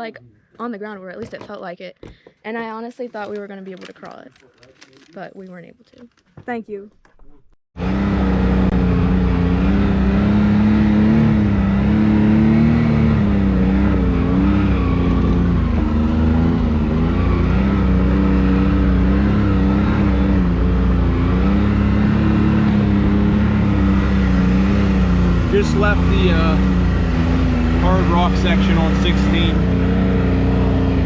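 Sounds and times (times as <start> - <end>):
engine running at low revs: 7.8 - 31.0.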